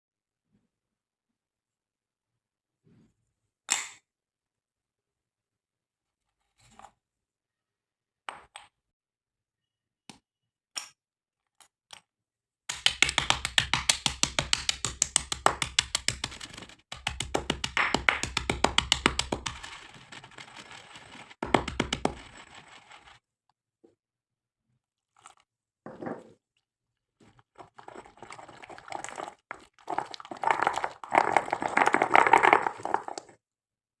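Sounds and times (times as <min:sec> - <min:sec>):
brittle material crunching: 0:27.6 - 0:33.3.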